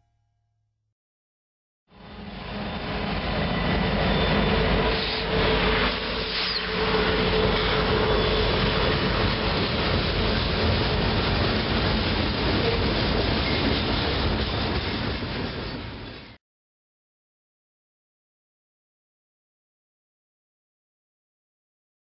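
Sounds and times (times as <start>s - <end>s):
freight train rumbling and rattling: 2.0s - 16.4s.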